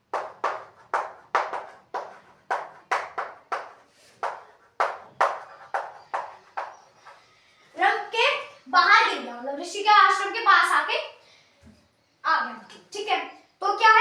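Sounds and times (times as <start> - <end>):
sharp taps: 0.1 - 7.2.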